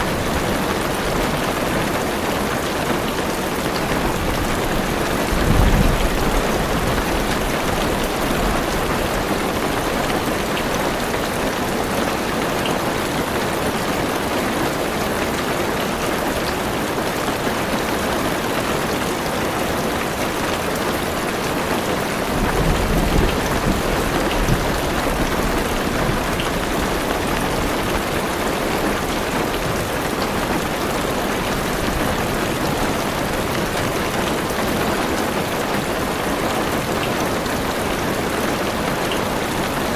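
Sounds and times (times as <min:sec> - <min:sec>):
heavy rain on a car roof: 0:00.0 - 0:39.9
low rumble of thunder: 0:04.1 - 0:09.3, 0:22.3 - 0:27.9.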